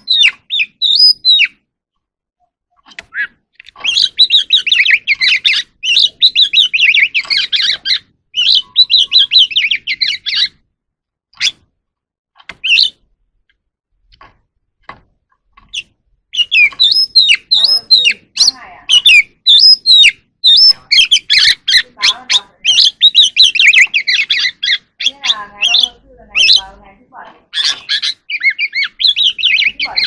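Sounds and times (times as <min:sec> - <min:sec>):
bird singing warbling notes: 0:02.4 - 0:10.6.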